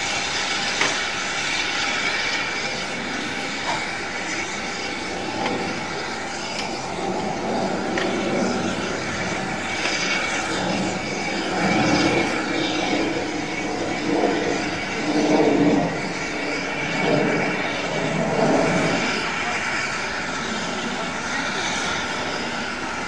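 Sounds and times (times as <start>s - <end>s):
steam train rumble and hiss: 0.0s - 23.0s.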